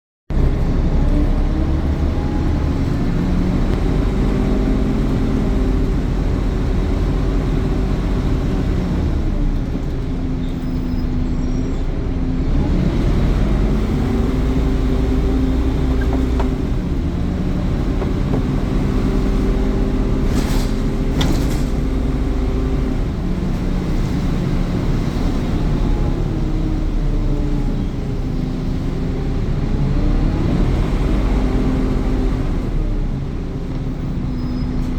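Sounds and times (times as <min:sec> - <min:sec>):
bus engine revving: 0:00.3 - 0:34.9.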